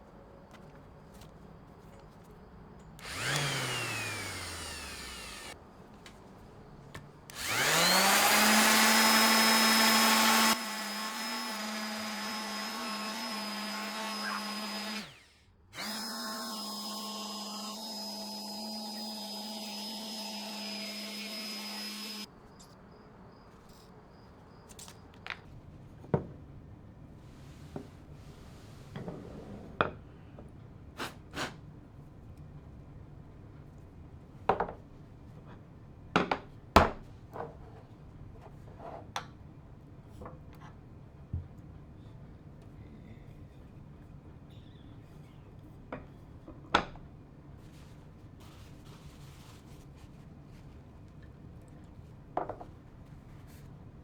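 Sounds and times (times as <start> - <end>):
electric power tool running: 3.0 - 5.6, 7.3 - 22.3.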